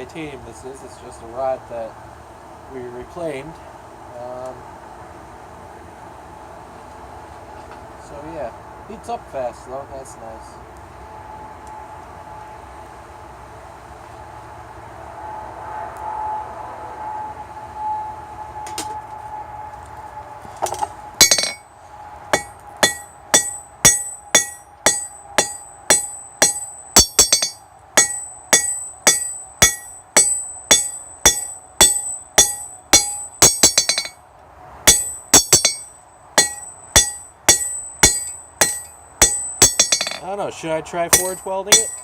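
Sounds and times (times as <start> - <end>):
hammer striking metal on anvil: 20.7 - 21.6, 22.3 - 34.2, 34.9 - 40.3, 41.1 - 42.0
steady hum: 20.7 - 34.2, 34.9 - 40.2.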